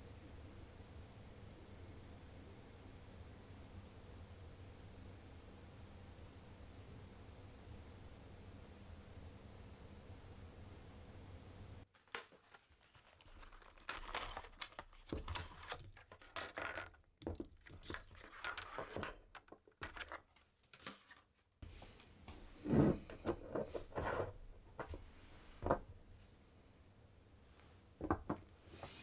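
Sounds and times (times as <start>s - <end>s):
rustling and crinkling: 11.9s - 26.5s, 27.4s - 29.0s.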